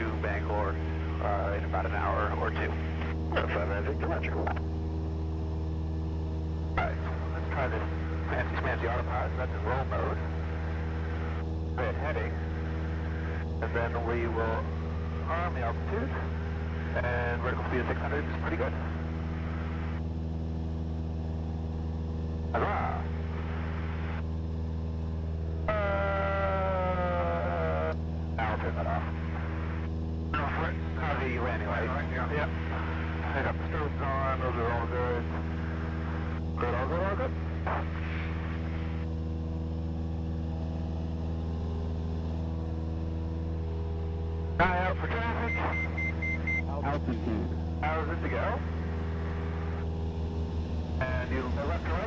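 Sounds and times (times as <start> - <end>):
airplane engine and propeller droning: 0.0 - 52.0
person exclaiming: 47.0 - 47.6.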